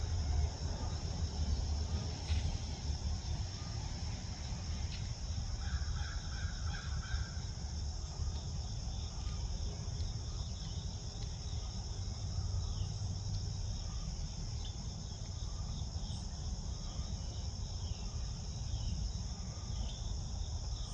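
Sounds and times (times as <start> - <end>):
insect chorus: 0.0 - 20.9
songbirds calling: 4.5 - 20.9.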